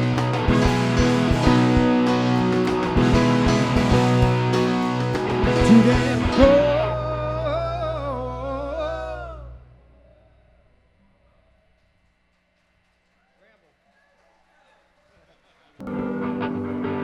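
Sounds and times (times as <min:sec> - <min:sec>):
live rock band with guitars: 0:00.0 - 0:08.2, 0:15.8 - 0:17.0.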